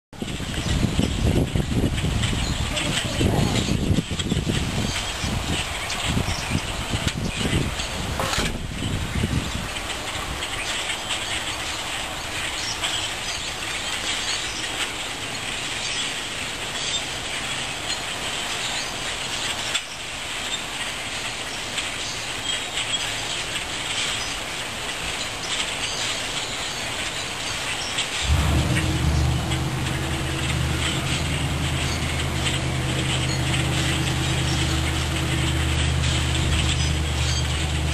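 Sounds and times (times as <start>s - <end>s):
flock of birds chattering: 0.2s - 37.9s.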